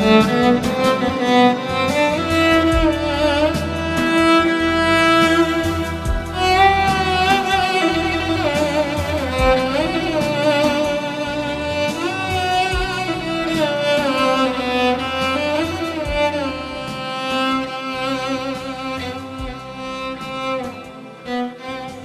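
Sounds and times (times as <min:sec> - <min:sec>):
bowed strings: 0:00.0 - 0:22.0
sliding violin melody: 0:00.0 - 0:22.0
low bass note: 0:04.6 - 0:07.1.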